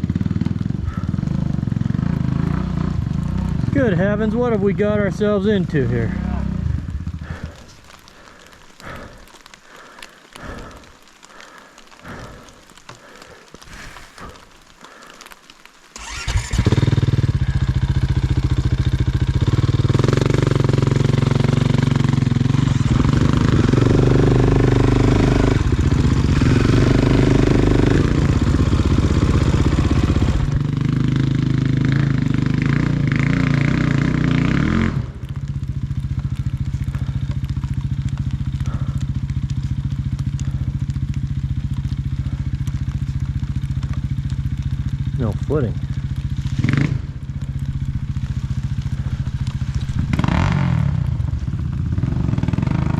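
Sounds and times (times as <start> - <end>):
off-road vehicle engine: 0.0 - 14.4, 16.0 - 52.9.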